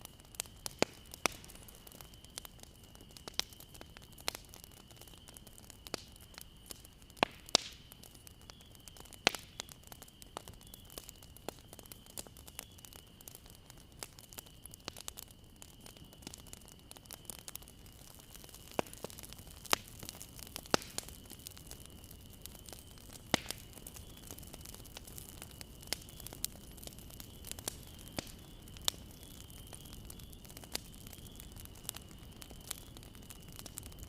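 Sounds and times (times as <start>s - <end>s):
bonfire crackling: 0.0s - 34.0s
burning wood popping: 0.0s - 34.0s.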